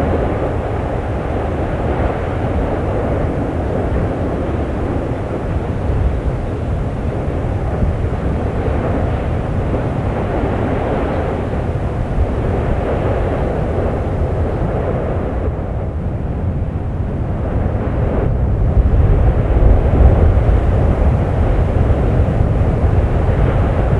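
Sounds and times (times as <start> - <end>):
volcano rumbling roar: 17.4 - 23.9.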